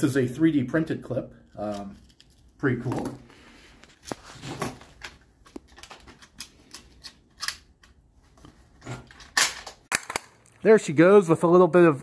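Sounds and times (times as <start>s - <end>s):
rifle action clicks and clacks: 5.0s - 8.0s.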